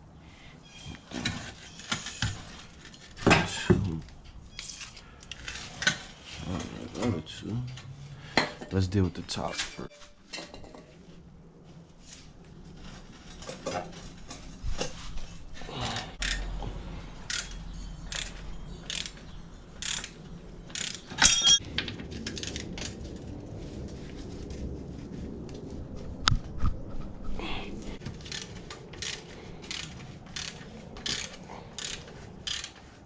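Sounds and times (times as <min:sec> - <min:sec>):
hand tools clicking on metal: 0:17.3 - 0:21.6, 0:28.2 - 0:32.9
loud ringing metal clank: 0:21.2 - 0:21.6.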